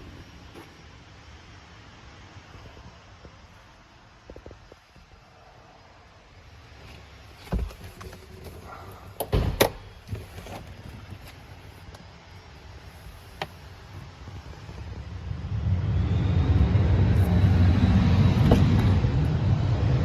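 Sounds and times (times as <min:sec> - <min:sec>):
faint high whine: 0:11.5 - 0:20.0
car engine starting and idling: 0:12.9 - 0:20.0.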